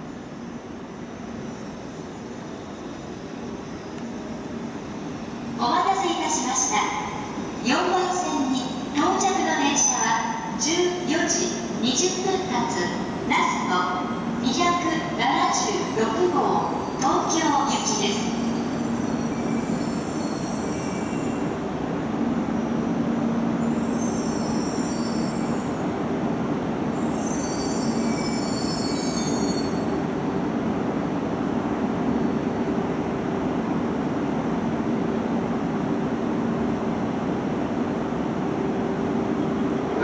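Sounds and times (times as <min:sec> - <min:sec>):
train rumble and hum: 0:00.0 - 0:40.0
high-pitched brake squeal: 0:18.5 - 0:21.5, 0:23.6 - 0:25.7, 0:26.8 - 0:30.0.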